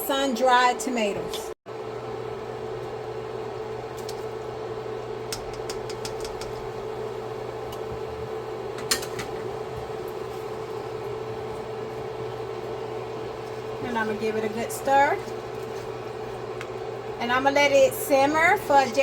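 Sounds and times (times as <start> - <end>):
kitchen fan humming: 0.0 - 19.0
sauce simmering: 1.8 - 17.2
utensil tapping a pan: 5.3 - 6.6.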